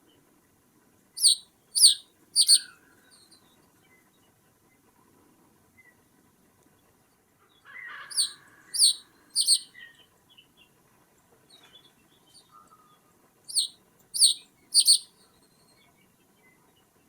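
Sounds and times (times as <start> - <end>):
bird sharp high calls: 1.2 - 2.8, 8.0 - 9.9, 13.5 - 15.1.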